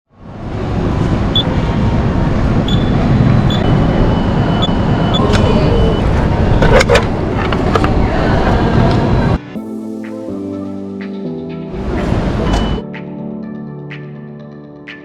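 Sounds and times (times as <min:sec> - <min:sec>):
vehicle engine rumbling: 0:00.2 - 0:09.4.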